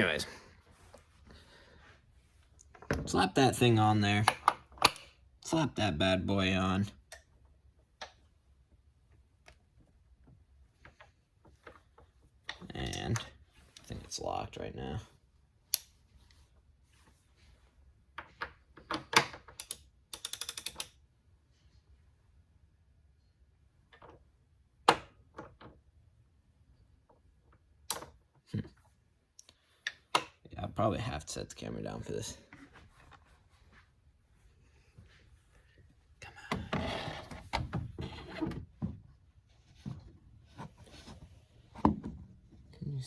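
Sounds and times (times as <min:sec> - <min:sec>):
sharp clicks and knocks: 0:18.2 - 0:21.0.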